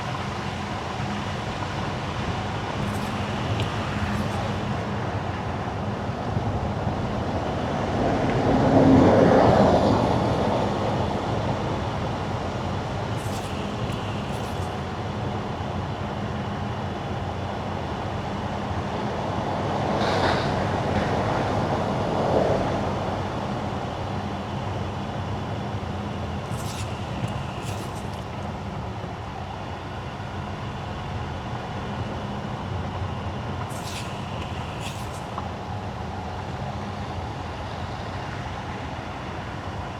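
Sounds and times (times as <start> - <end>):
short high squeaks: 0.0 - 5.0, 13.1 - 15.0, 26.4 - 28.6, 33.7 - 35.7.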